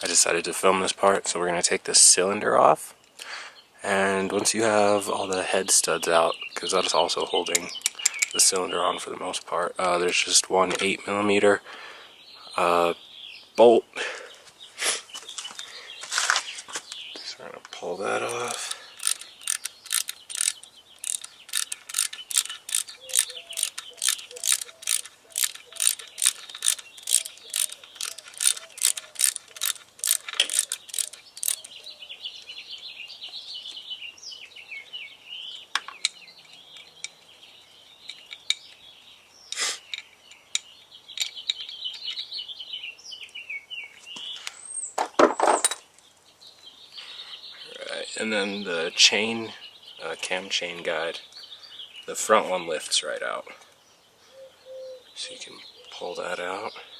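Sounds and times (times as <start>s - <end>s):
ratchet wrench clicking: 18.2s - 31.7s.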